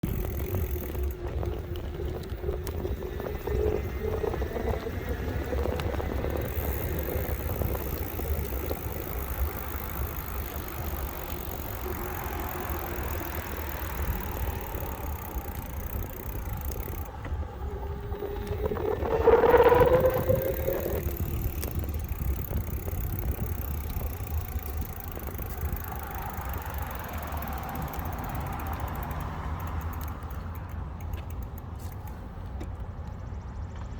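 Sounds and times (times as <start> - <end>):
electric motor whine: 0.0 - 26.6
wind and rolling noise: 0.0 - 33.9.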